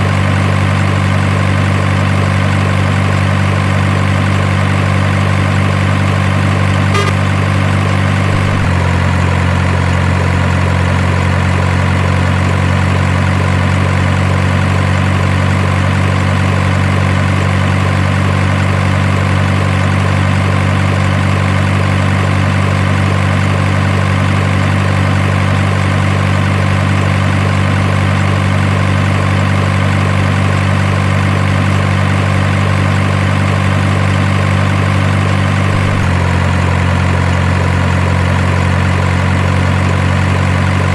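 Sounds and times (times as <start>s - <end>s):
truck engine idling: 0.0s - 40.9s.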